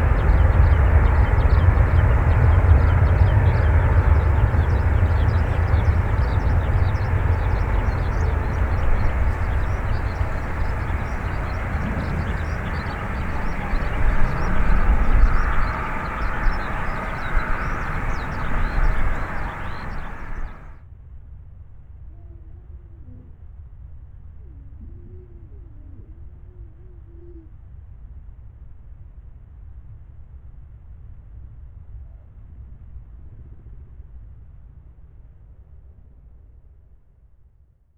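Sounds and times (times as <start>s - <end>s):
jet airliner rumble: 0.0s - 20.8s.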